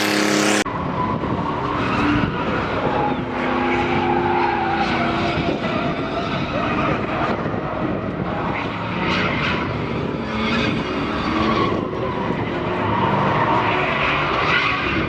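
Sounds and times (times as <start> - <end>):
truck engine revving hard: 0.0 - 0.6.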